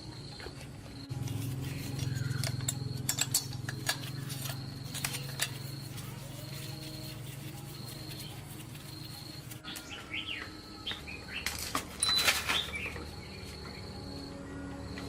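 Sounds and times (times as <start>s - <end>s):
bird chirps: 7.8s - 14.6s.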